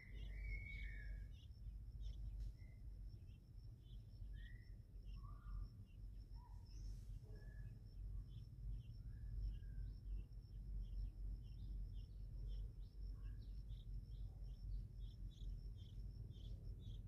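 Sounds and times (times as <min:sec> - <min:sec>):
bird chirping: 0:00.0 - 0:17.0
high insect whine: 0:00.0 - 0:17.0.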